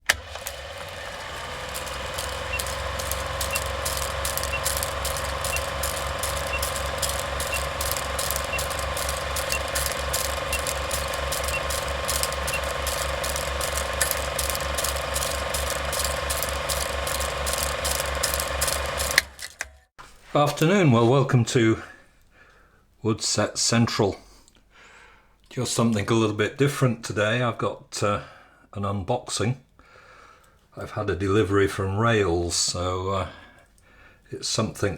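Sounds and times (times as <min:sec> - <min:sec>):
mechanical clicking: 0:00.0 - 0:19.9
steady hum: 0:01.0 - 0:19.3.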